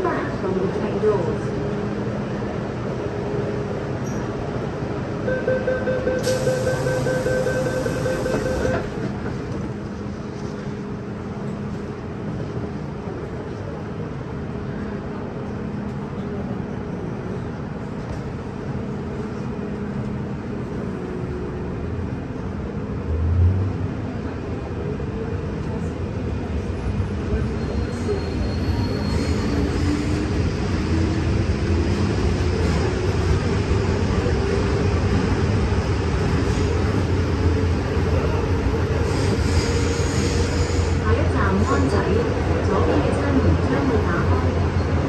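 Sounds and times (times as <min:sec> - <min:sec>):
train running on rails: 0:00.0 - 0:45.0
train doors closing: 0:03.7 - 0:10.8, 0:27.3 - 0:45.0
door warning beeps: 0:05.3 - 0:08.9.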